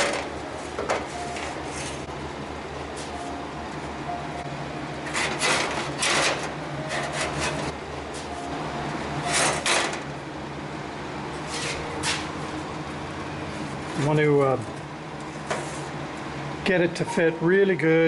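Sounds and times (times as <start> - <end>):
steady low hum: 0.0 - 18.0
metal scraping against metal: 5.0 - 7.8, 9.2 - 10.1, 11.4 - 12.3.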